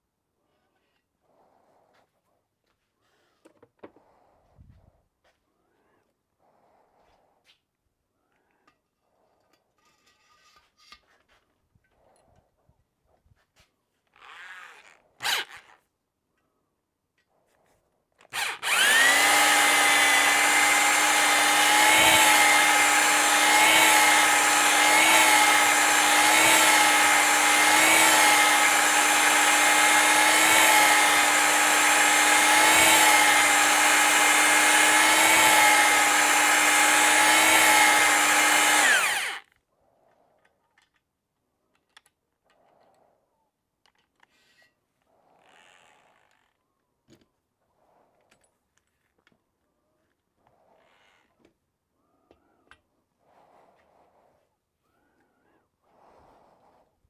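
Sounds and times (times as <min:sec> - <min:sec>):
electric drill motor whining: 0:18.3 - 0:39.4.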